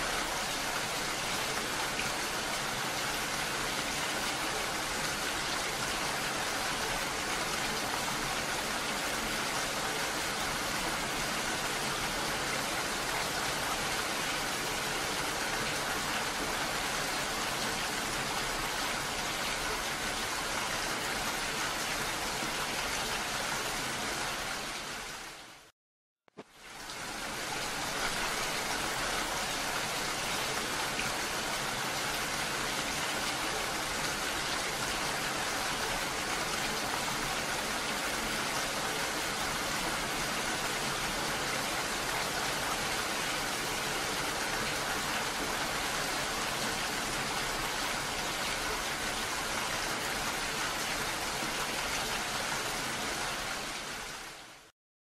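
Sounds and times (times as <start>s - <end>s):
heavy rain falling: 26.4s - 54.7s.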